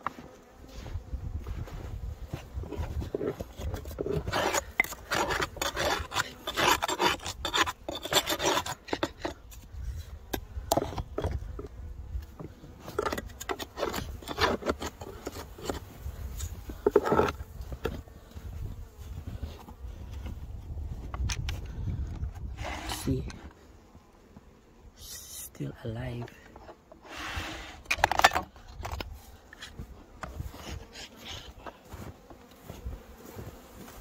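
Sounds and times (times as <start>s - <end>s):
scraping snow: 0.1s - 8.9s, 29.1s - 34.0s.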